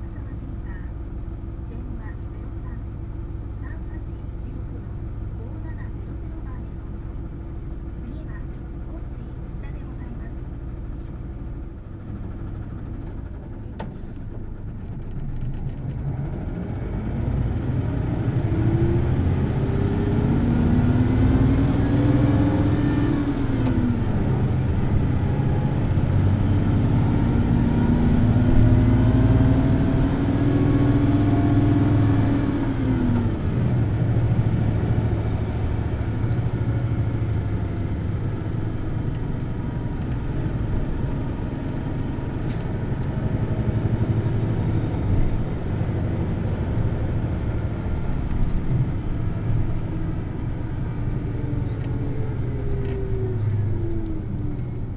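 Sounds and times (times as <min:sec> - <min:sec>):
bus diesel engine accelerating: 0:00.0 - 0:54.9.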